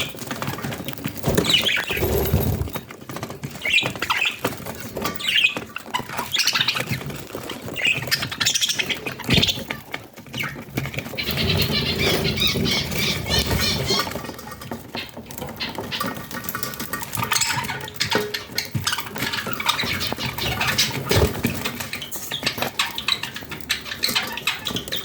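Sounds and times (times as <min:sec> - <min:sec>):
budgerigars chirping: 0:10.3 - 0:14.2.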